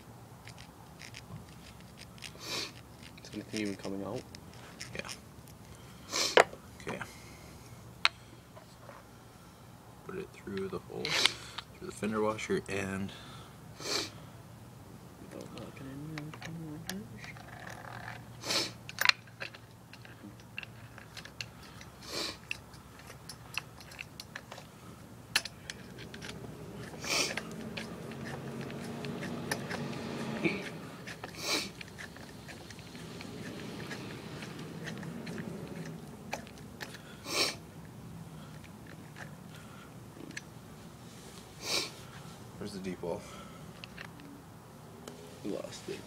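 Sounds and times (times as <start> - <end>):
metal parts clicking and knocking: 0.4 - 2.4, 18.8 - 24.7, 25.3 - 37.0.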